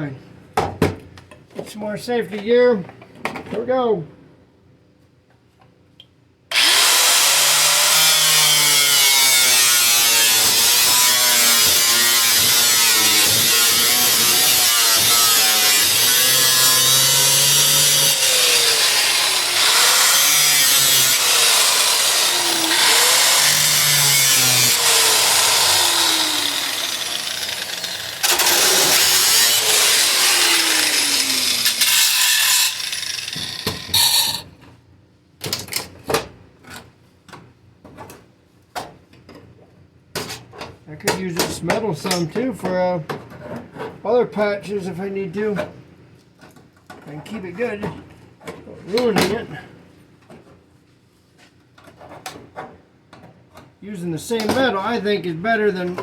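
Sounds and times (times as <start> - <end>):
power tool cutting sheet metal: 6.5 - 34.4.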